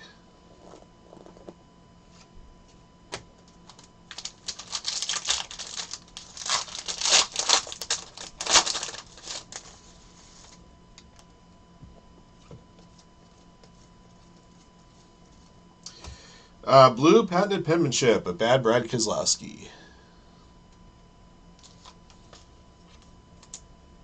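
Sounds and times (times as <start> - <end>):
trading cards clicking and rustling: 3.1 - 9.8.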